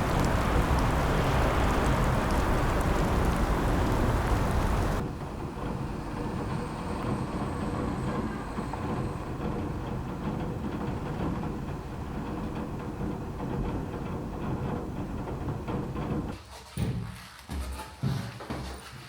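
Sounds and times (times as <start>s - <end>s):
faint steady hum: 0.0s - 5.0s
rushing noise: 0.0s - 5.0s
train rumble: 0.0s - 16.4s.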